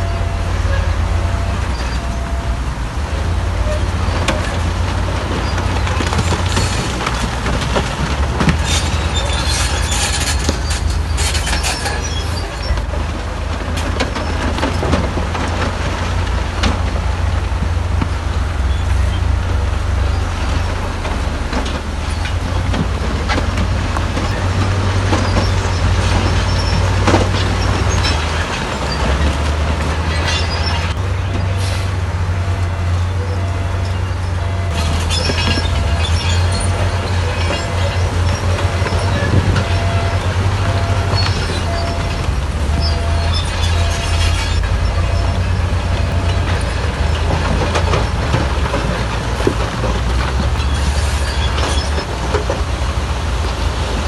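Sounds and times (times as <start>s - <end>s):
bulldozer diesel engine running: 0.0s - 54.0s
steel tracks clanking and squealing: 0.0s - 54.0s
harsh grinding: 18.0s - 54.0s.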